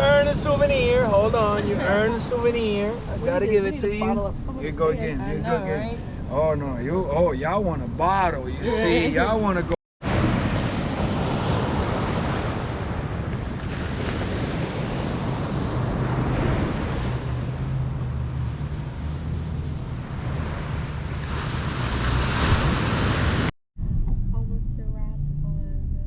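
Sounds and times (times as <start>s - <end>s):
wind buffeting microphone: 0.0s - 4.8s
ocean surf: 0.0s - 6.4s, 8.4s - 23.5s
wind roaring: 0.0s - 24.4s.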